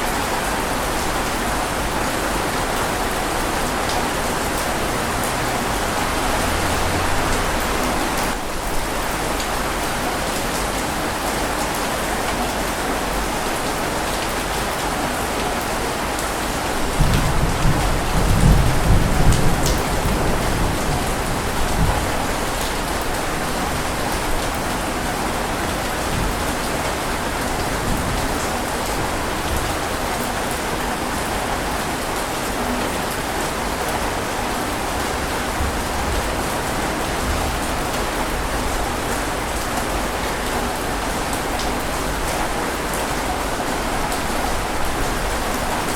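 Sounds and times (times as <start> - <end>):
steady rain falling: 0.0 - 45.9
thunder rumbling: 16.7 - 24.5.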